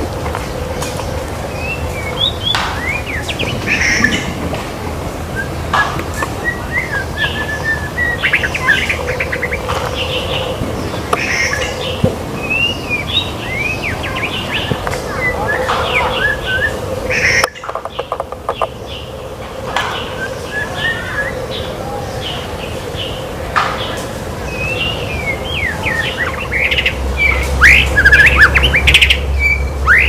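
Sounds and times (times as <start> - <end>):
bird singing whistles and chirps: 1.5 - 4.3, 6.2 - 17.6, 19.9 - 22.4, 23.8 - 30.0.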